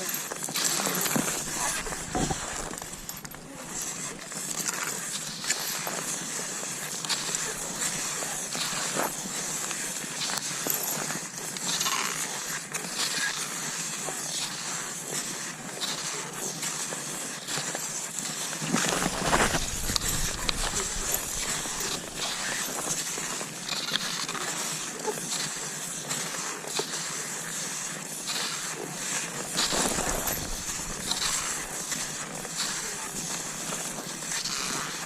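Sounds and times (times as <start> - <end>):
skis sliding over snow: 0.0 - 35.0
snow crunching: 0.7 - 4.8, 18.7 - 23.4, 29.4 - 35.0.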